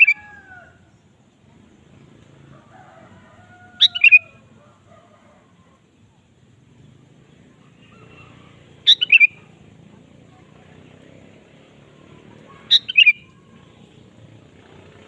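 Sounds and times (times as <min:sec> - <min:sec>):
faint steady background noise: 0:00.0 - 0:15.0
bulbul calling: 0:03.8 - 0:04.5, 0:07.6 - 0:09.6, 0:11.7 - 0:14.2.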